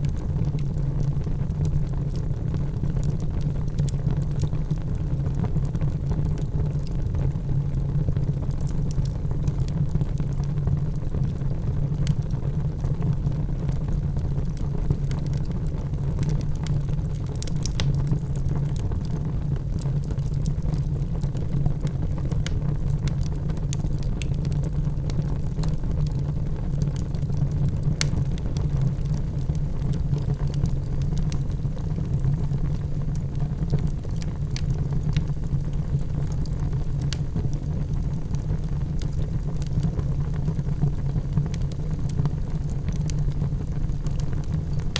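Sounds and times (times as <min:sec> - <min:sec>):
fire crackles and pops: 0:00.0 - 0:44.9
wood fire low rumble: 0:00.0 - 0:44.9.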